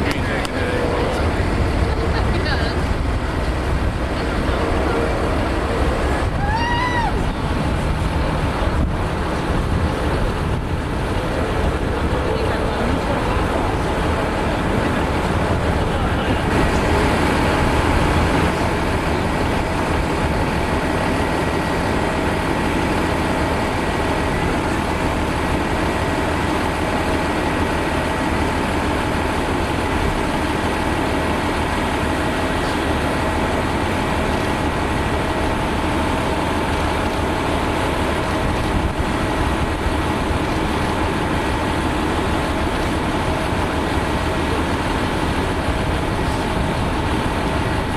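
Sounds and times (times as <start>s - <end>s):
jet engine high whine: 0.0s - 47.9s
jet engines rumbling: 0.0s - 47.9s.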